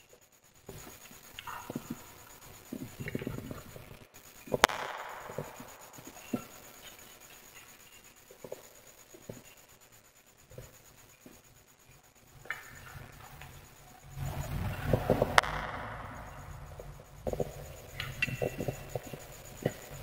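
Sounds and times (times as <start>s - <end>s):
loud sharp pop of fire: 4.6s - 6.5s
wood fire crackling: 11.9s - 20.0s.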